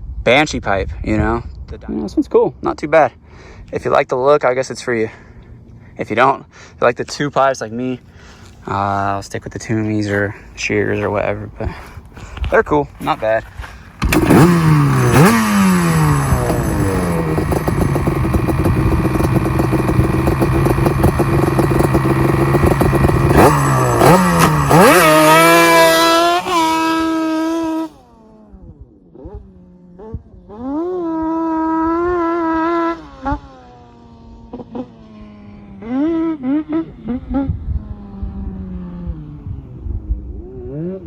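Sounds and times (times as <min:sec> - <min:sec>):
two-stroke engine revving: 0:14.0 - 0:39.7.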